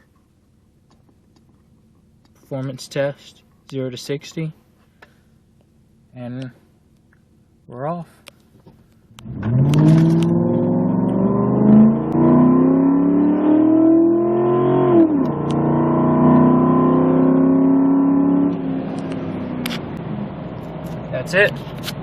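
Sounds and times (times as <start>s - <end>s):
truck engine accelerating hard: 9.2s - 22.0s.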